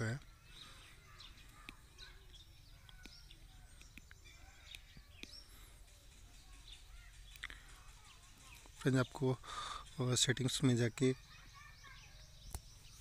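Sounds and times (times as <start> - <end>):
faint birds chirping: 0.0 - 13.0
soft clicks: 1.5 - 5.4.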